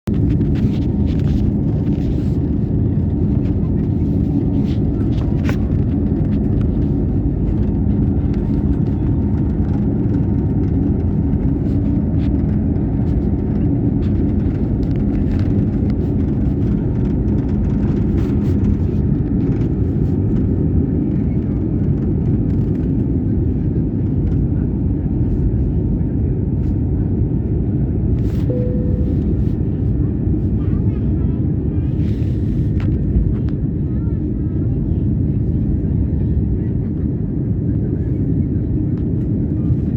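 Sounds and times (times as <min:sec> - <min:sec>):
jet engine rumble: 0:00.0 - 0:39.9
low hum: 0:00.1 - 0:20.6, 0:28.1 - 0:33.3
short tone: 0:28.5 - 0:29.8.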